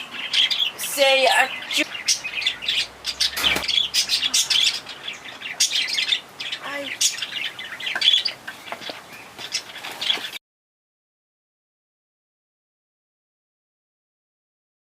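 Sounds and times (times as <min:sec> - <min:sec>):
small birds chirping rapidly: 0:00.0 - 0:10.4.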